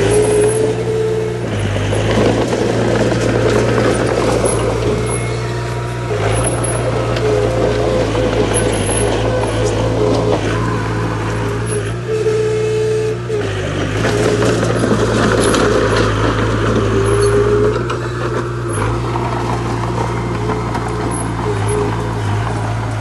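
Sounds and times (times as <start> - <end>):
dense rumble: 0.0 - 23.0
diesel engine drone: 0.0 - 23.0
high machine whine: 0.0 - 23.0.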